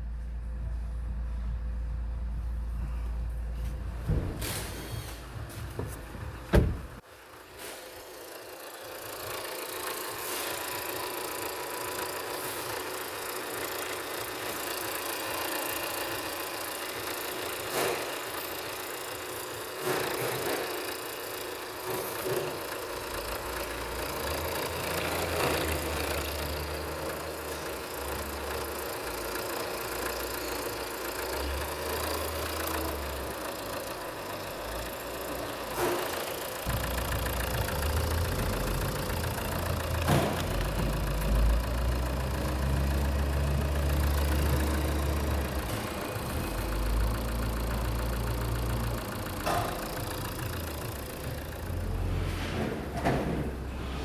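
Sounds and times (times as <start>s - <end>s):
diesel engine idling: 0.0s - 54.0s
sharp engine knocks: 4.0s - 7.0s, 35.7s - 54.0s
low rumbles: 5.2s - 7.0s.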